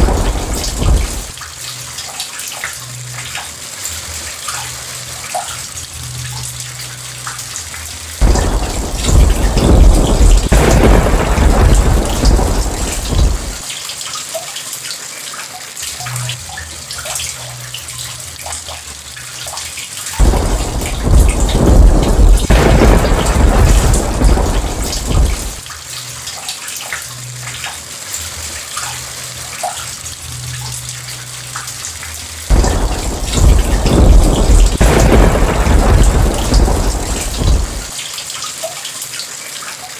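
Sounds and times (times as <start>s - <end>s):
thunder rumbling: 0.0s - 1.4s, 8.2s - 13.6s, 20.2s - 25.6s, 32.5s - 38.0s
steady rain hissing: 0.0s - 14.4s, 17.3s - 39.6s.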